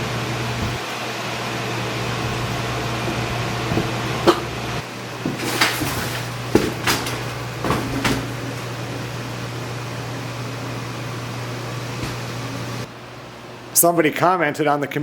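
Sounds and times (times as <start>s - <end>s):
heater fan humming: 0.0s - 15.0s
sharp knocks and clatters: 2.0s - 8.3s.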